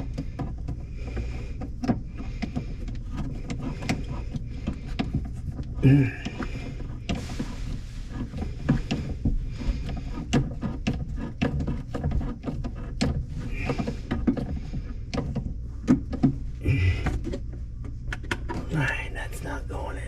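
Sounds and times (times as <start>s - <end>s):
drain fittings clicking and knocking: 8.1s - 18.7s.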